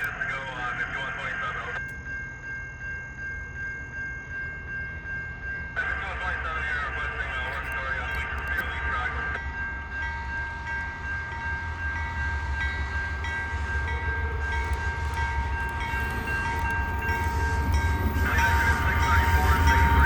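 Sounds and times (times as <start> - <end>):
freight train rumble: 0.0 - 20.0
steady high tones: 0.0 - 20.0.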